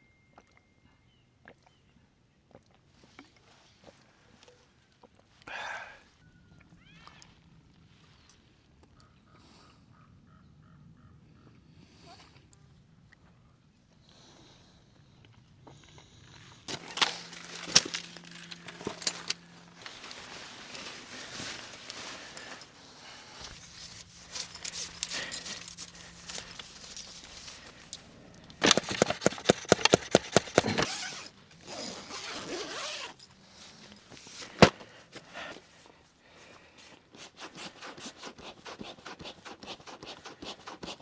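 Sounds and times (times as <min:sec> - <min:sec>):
camping gear scraping and clicking: 0:16.6 - 0:35.6
zipper being pulled: 0:16.7 - 0:22.7, 0:23.4 - 0:33.3.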